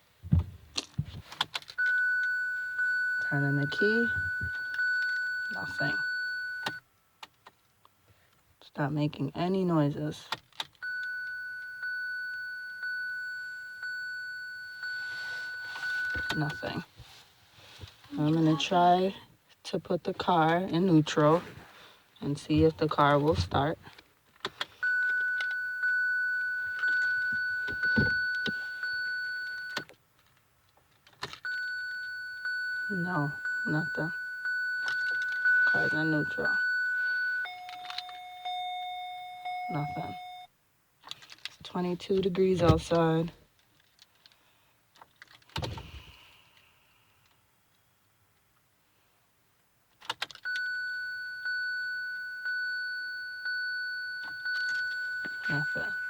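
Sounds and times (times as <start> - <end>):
low thunk: 0.2 - 1.2
dashboard warning chime: 1.8 - 6.8, 10.8 - 16.9, 24.8 - 29.9, 31.4 - 40.5, 50.4 - 56.0.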